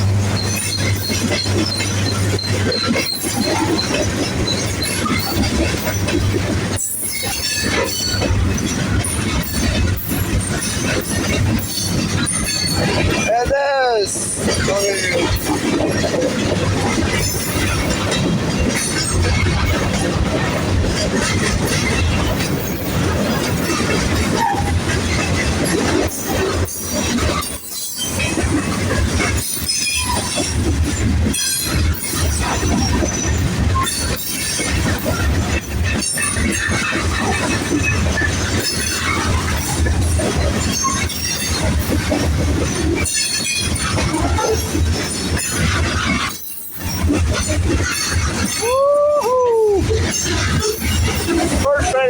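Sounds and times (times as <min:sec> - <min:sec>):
freight train rolling past: 0:00.0 - 0:52.0
person whooping: 0:48.5 - 0:50.0.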